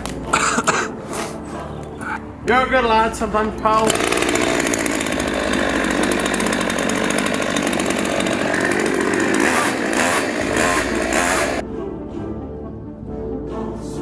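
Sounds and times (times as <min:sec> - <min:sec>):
chainsaw cutting: 0:03.8 - 0:11.6.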